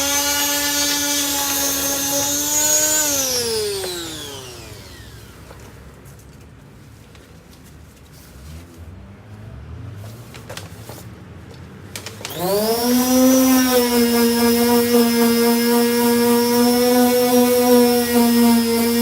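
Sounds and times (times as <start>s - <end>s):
power sander motor whining: 0.0s - 5.8s, 12.3s - 19.0s.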